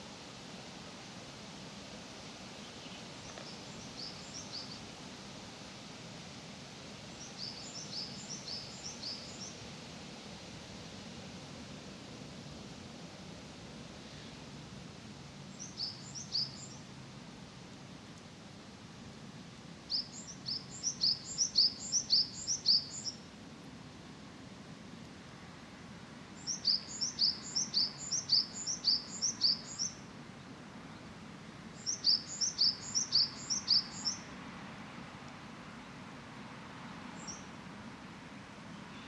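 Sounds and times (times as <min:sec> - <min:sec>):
songbird singing: 0:02.5 - 0:05.1, 0:07.1 - 0:09.8, 0:15.4 - 0:17.0, 0:19.8 - 0:23.3, 0:26.4 - 0:34.3, 0:37.0 - 0:37.6, 0:38.3 - 0:39.0.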